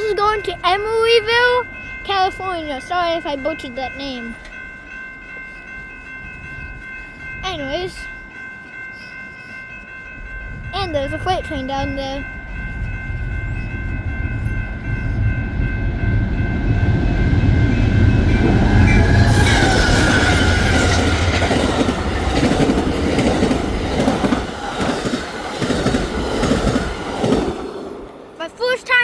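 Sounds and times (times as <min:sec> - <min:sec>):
train rumble: 0:00.0 - 0:29.0
train cars clickety-clack: 0:10.4 - 0:29.0.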